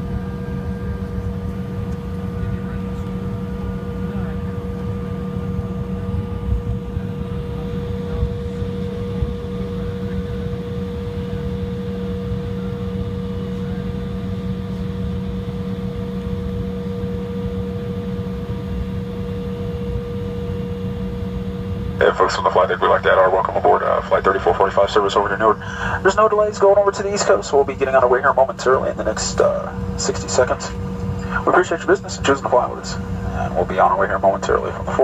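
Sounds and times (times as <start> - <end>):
airliner cabin hum: 0.0 - 35.0
droning tones: 19.6 - 35.0.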